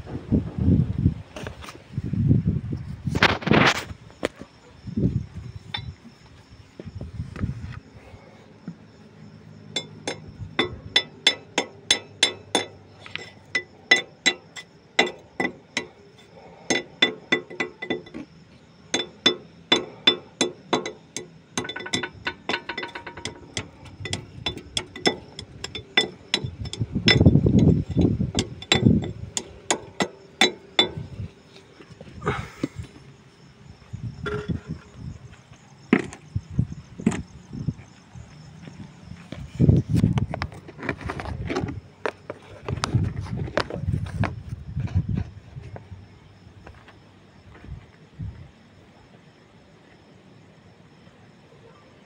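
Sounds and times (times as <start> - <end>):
sharp ringing taps on metal: 5.7 - 6.1, 9.6 - 31.3, 34.2 - 34.9.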